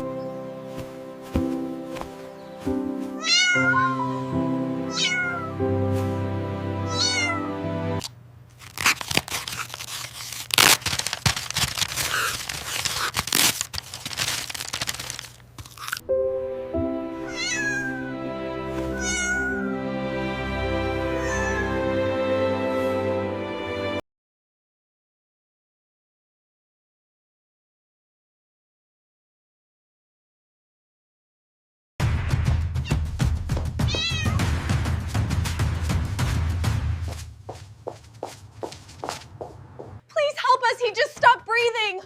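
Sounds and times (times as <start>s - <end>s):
background music: 0.0s - 8.1s, 16.0s - 24.0s, 32.0s - 37.3s
kitten mewing: 3.2s - 5.6s, 6.9s - 7.5s, 17.2s - 19.7s, 21.2s - 21.8s, 32.8s - 33.0s, 33.9s - 34.5s.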